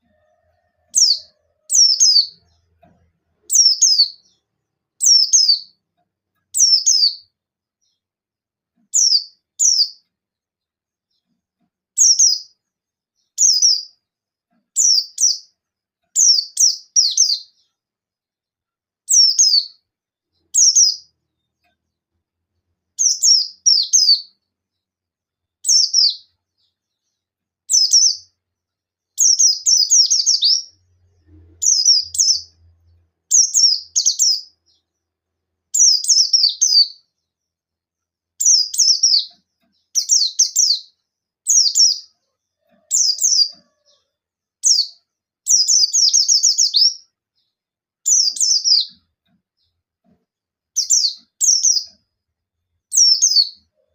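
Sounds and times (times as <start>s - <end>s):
bird chirping in quick bursts: 3.5s - 5.8s, 6.5s - 8.0s, 8.9s - 10.0s, 16.2s - 17.7s, 19.1s - 19.8s, 20.4s - 21.1s, 23.0s - 24.4s, 25.6s - 26.8s, 27.7s - 28.4s, 29.2s - 34.9s, 35.7s - 37.2s, 38.4s - 42.2s, 44.6s - 47.0s, 48.0s - 49.0s, 50.8s - 52.0s.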